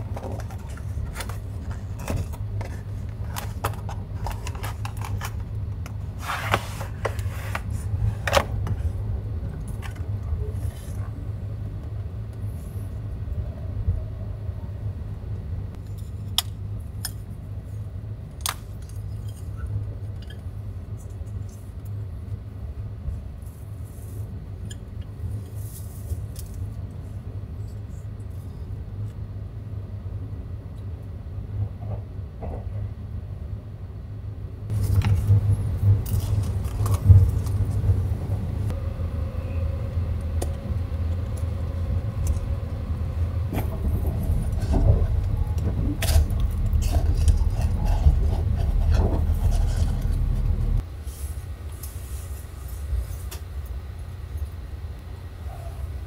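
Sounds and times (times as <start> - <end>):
train rumbling on rails: 31.3 - 33.9, 34.7 - 50.8.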